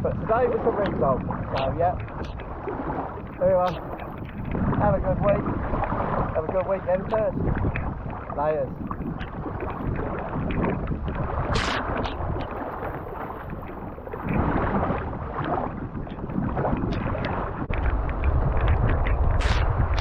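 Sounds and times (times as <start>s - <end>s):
choppy sea splashing: 0.0s - 20.0s
wind buffeting microphone: 0.0s - 20.0s
sharp water splash: 7.4s - 20.0s.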